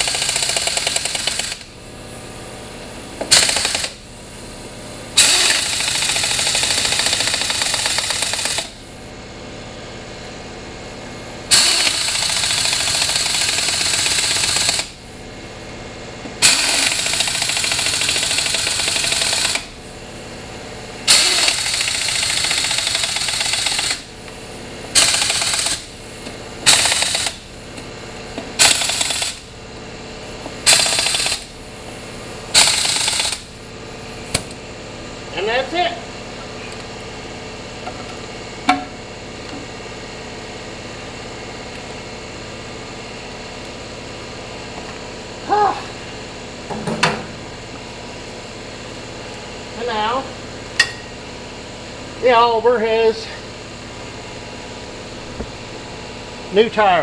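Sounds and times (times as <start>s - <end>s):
impact wrench running: 0.0s - 1.8s, 3.2s - 9.0s, 11.5s - 15.1s, 16.4s - 19.8s, 21.0s - 29.6s, 30.3s - 34.6s.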